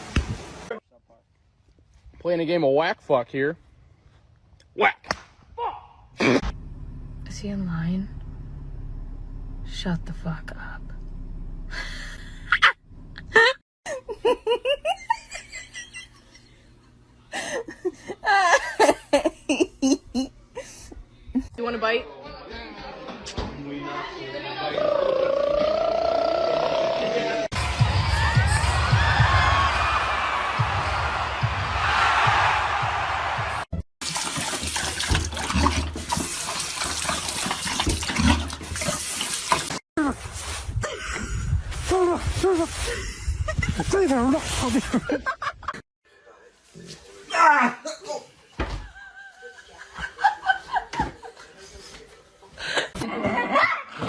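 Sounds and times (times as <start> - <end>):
person laughing: 11.7 - 16.4, 17.4 - 20.8, 42.8 - 44.0.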